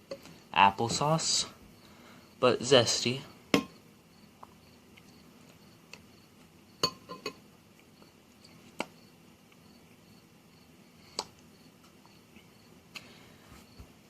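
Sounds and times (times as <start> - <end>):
utensil clinking against dish: 6.8 - 7.4.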